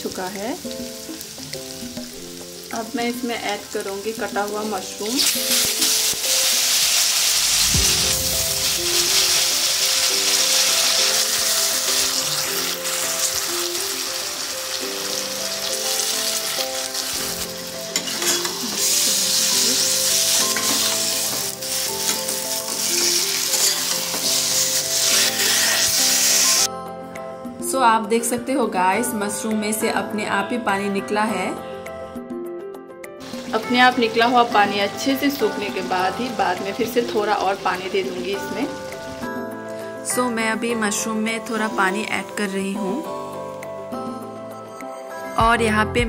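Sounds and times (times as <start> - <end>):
mushrooms sizzling in hot oil: 0.0 - 26.7, 33.2 - 40.0.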